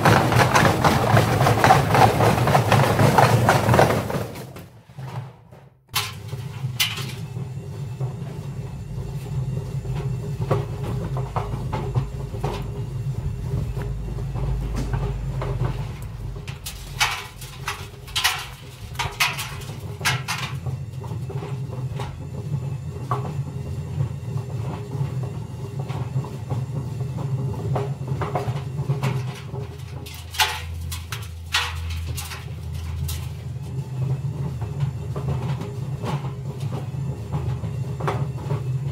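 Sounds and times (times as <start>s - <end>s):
bricks banging in drum: 0.0s - 5.2s
washing machine rumble: 0.0s - 38.9s.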